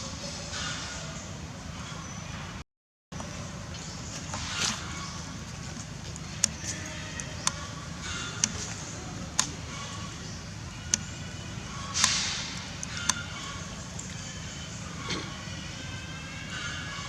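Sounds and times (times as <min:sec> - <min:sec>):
steady low hum: 0:03.2 - 0:17.0
sharp clicks: 0:11.9 - 0:13.3.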